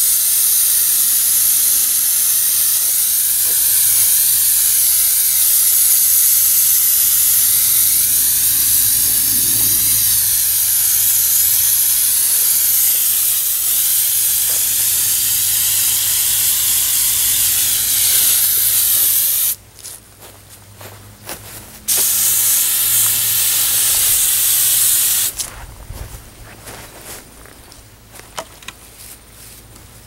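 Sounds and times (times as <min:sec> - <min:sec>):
aerosol can spraying: 0:00.0 - 0:19.6, 0:21.9 - 0:25.4.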